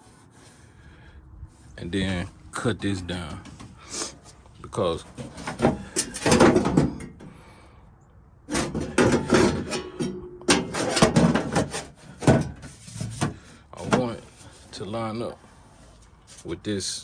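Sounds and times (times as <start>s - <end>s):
sheet metal clunking and scraping: 5.0s - 7.4s, 8.5s - 14.7s.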